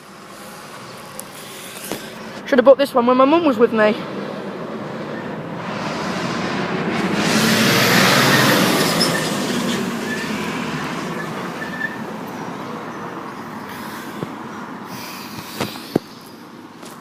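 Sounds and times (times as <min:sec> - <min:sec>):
vehicle passing: 0:00.2 - 0:16.2.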